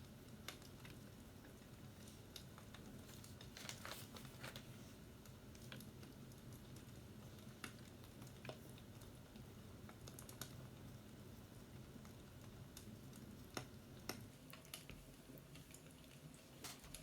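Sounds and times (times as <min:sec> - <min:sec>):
fireplace crackling: 0:00.4 - 0:06.1.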